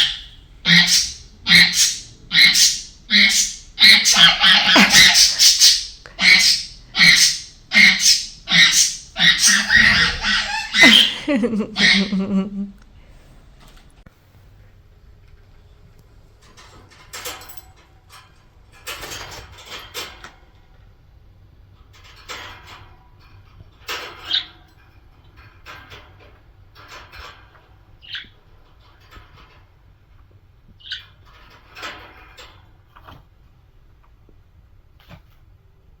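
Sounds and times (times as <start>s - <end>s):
budgies chirping: 0.0s - 12.3s.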